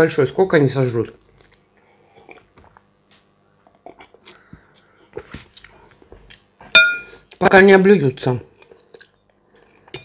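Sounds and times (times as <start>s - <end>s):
quiet chewing: 1.2s - 6.6s, 8.6s - 9.9s.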